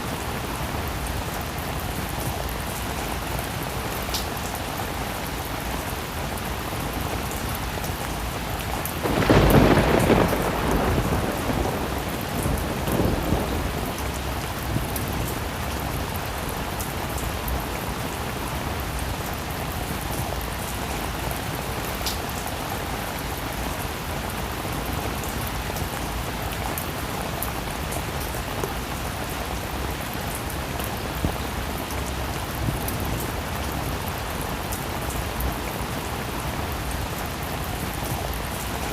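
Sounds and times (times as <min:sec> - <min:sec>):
heavy rain: 0:00.0 - 0:38.9
thunder clap rumbling: 0:09.0 - 0:15.8.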